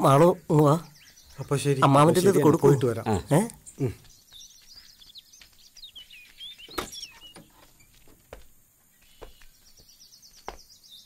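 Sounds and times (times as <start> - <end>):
birds twittering: 0.0 - 11.0
sharp knocks: 6.7 - 8.4.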